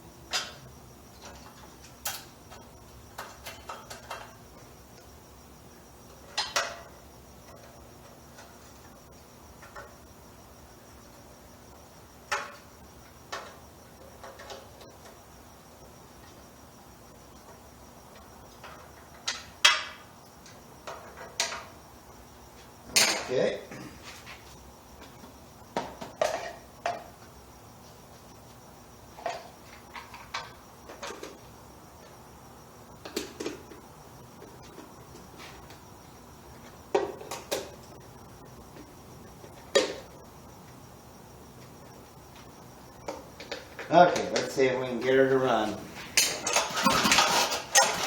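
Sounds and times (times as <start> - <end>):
hard parts clicking and knocking: 46.2 - 48.0
metal tools clinking: 46.2 - 48.0.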